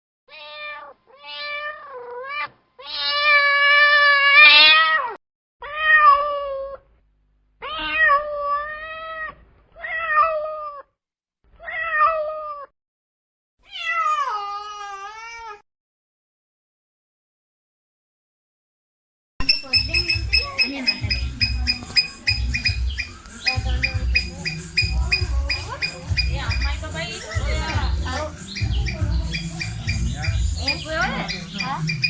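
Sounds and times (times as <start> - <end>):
cat meowing: 0.3 - 6.8, 7.6 - 10.9, 11.6 - 12.7, 13.6 - 15.6.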